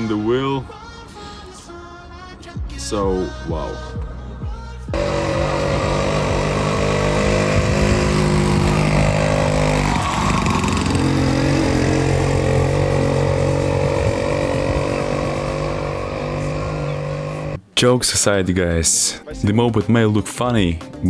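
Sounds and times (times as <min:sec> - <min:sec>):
moped engine running: 0:04.9 - 0:17.6.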